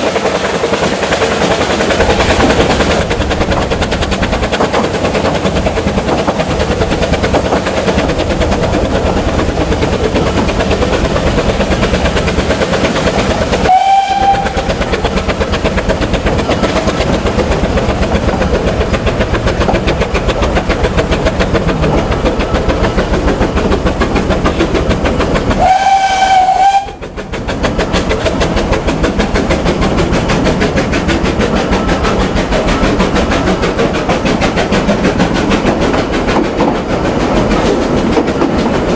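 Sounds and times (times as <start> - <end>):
steam locomotive running: 0.0 - 38.9
steam whistle blasts: 13.6 - 14.8, 25.6 - 27.0.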